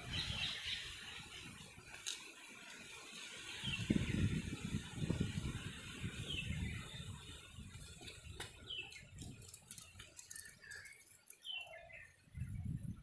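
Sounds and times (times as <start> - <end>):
bird chirping: 0.0 - 1.5, 8.1 - 12.8.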